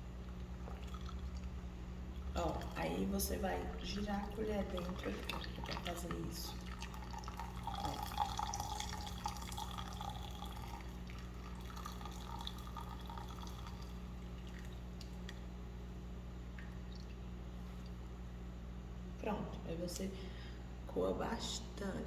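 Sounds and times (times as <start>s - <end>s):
steady low hum: 0.0s - 22.0s
coffee dripping through filter: 0.1s - 15.5s, 16.5s - 18.0s.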